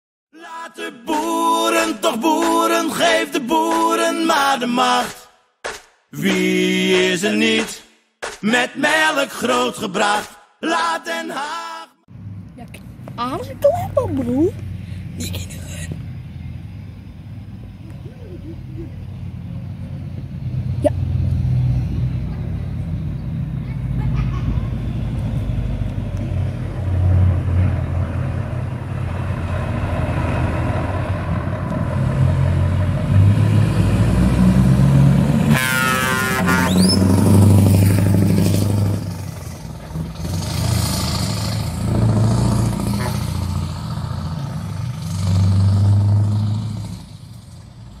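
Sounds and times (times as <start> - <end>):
truck engine rumbling: 12.1 - 48.0.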